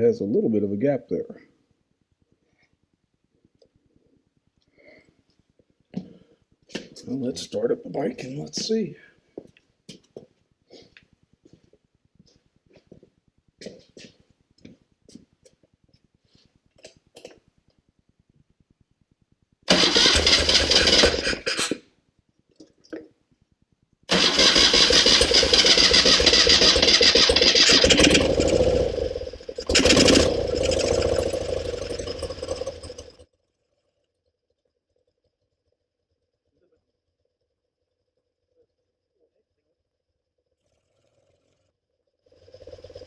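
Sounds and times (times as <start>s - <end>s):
motorcycle engine starting and running: 19.7s - 21.8s, 24.1s - 33.3s.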